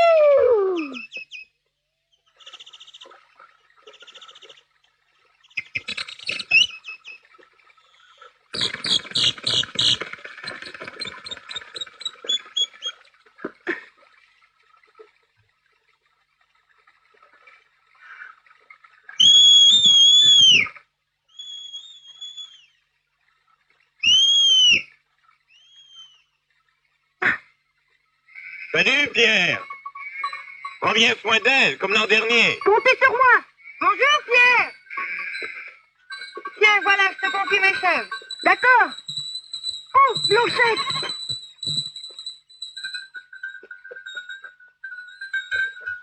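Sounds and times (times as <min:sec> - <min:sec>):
chattering animal calls: 0:05.6 - 0:07.2, 0:08.0 - 0:13.0, 0:28.3 - 0:41.8
shrill whistle blasts: 0:19.2 - 0:20.8, 0:21.4 - 0:22.7, 0:24.0 - 0:24.9, 0:36.6 - 0:43.0.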